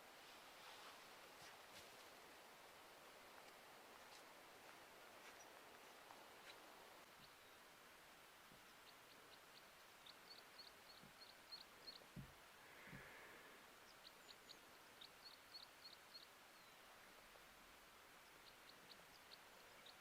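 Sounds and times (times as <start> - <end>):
small bird chirping: 8.6 - 12.2, 13.8 - 16.9
soft low thumps: 12.1 - 13.1.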